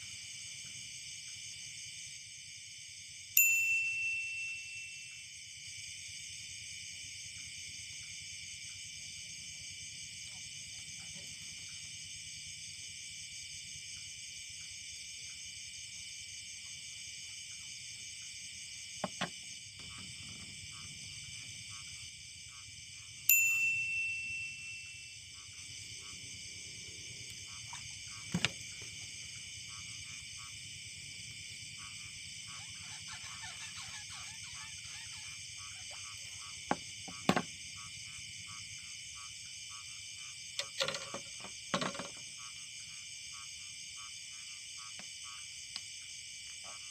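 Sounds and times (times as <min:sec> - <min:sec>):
small bell ringing: 0:03.4 - 0:05.3, 0:23.3 - 0:25.3
insects shrilling: 0:25.1 - 0:38.6.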